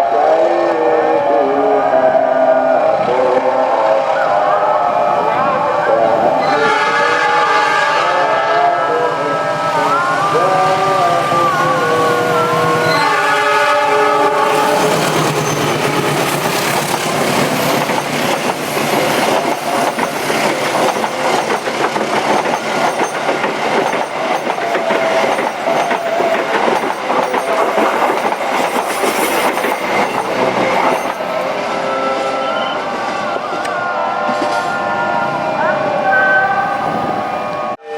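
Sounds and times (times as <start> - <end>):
train wheels clattering over rails: 14.8 - 31.4.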